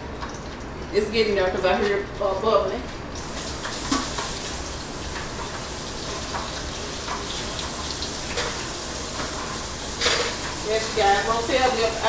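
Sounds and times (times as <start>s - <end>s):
grease sizzling in a pan: 3.2s - 12.0s.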